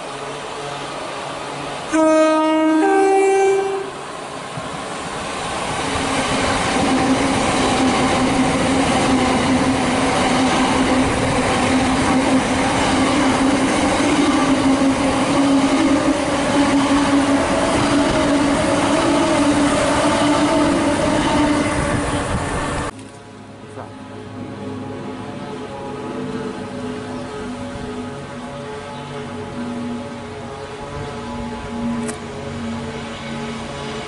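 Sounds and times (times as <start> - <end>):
train running past: 0.0 - 34.0
two-tone train horn: 1.9 - 4.1, 25.6 - 34.0.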